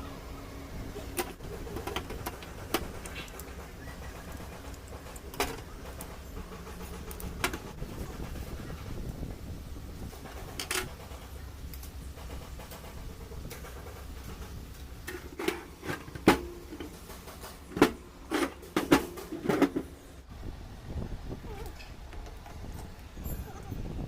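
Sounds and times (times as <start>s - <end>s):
tools clanking on engine parts: 1.0s - 8.5s, 10.1s - 20.1s.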